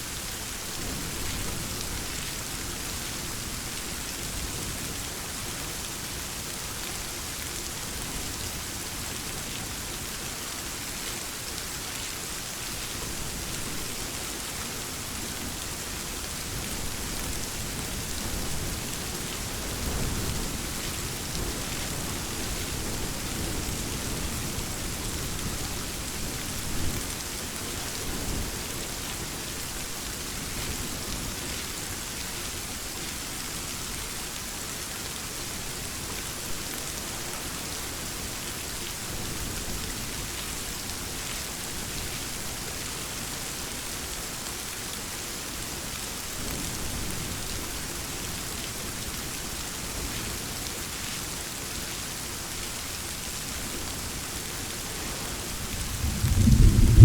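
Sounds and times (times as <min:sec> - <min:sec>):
heavy rain hiss: 0:00.0 - 0:57.0
thunder rumbling: 0:55.6 - 0:57.0.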